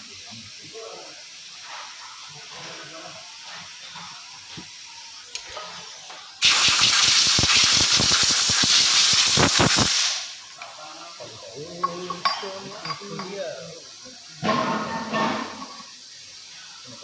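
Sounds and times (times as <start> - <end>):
compressed air blow gun hissing: 3.3 - 11.4.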